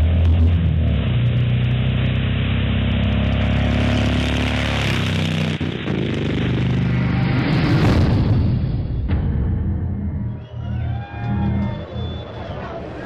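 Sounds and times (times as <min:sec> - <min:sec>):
motorcycle engines revving: 0:00.0 - 0:08.1.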